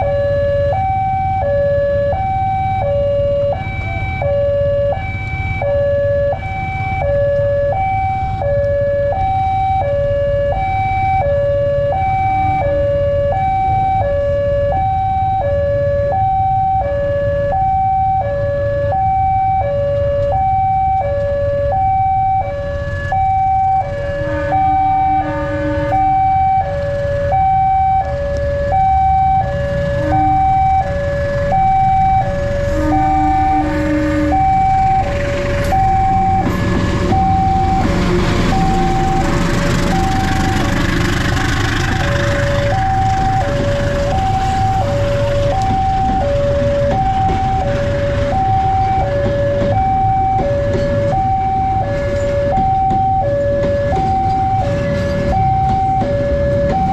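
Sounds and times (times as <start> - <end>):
level crossing alarm warbling: 0.0 - 56.9
lower alarm tone: 0.0 - 56.9.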